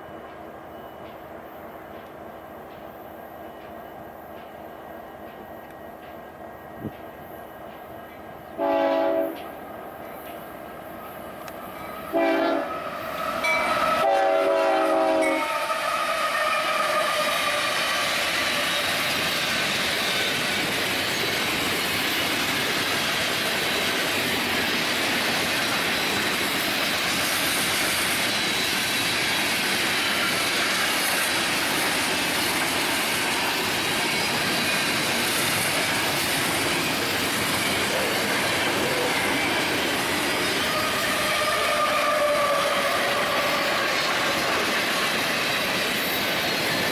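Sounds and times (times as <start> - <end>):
train wheels clattering on rails: 0.0 - 46.9
train horn blasts: 8.6 - 9.5, 12.0 - 18.8, 40.6 - 44.7.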